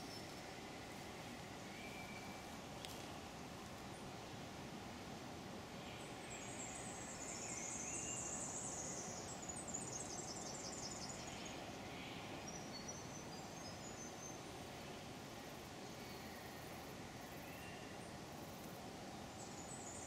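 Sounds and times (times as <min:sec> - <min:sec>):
low outdoor background noise: 0:00.0 - 0:20.0.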